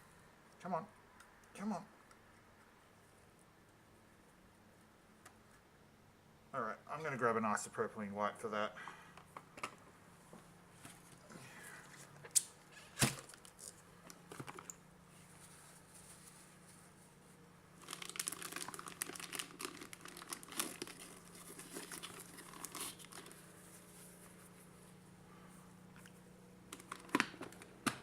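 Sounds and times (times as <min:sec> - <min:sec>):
packet crinkling and rustling: 0:17.8 - 0:23.9, 0:26.7 - 0:27.8.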